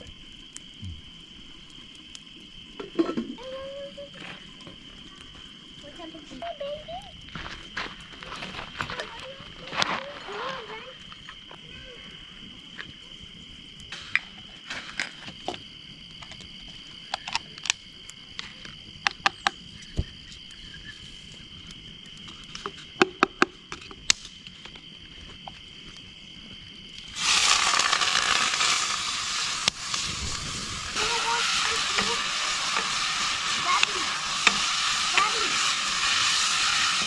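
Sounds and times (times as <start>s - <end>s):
campfire crackling and popping: 0.0s - 37.0s
crickets chirping: 0.0s - 37.0s
pan sizzling: 3.3s - 5.1s, 27.1s - 37.0s.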